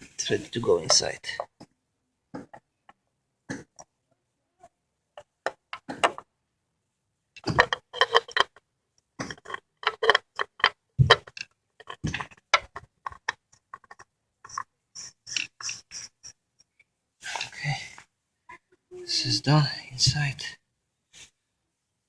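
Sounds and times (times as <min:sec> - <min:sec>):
oil filter clicking and scraping: 0:07.4 - 0:08.6, 0:09.2 - 0:16.3.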